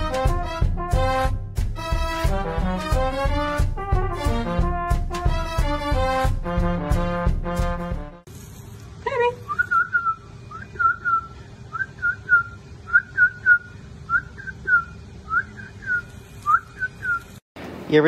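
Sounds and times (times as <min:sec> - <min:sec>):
brass music: 0:00.0 - 0:08.3
person whistling swooping chirps: 0:09.4 - 0:17.4.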